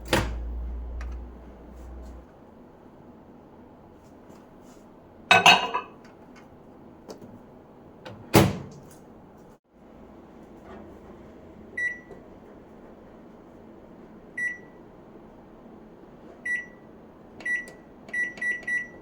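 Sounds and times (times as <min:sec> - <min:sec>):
microwave door shutting: 0:00.0 - 0:01.2
keypad beep: 0:17.4 - 0:19.0.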